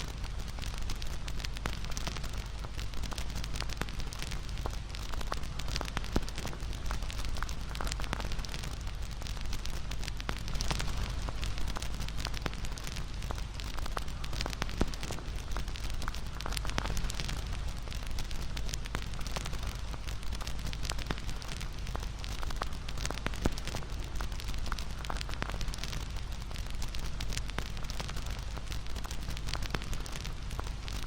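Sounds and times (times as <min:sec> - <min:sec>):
burning wood crackling and popping: 0:00.0 - 0:31.0
low rumble of flames: 0:00.0 - 0:31.0.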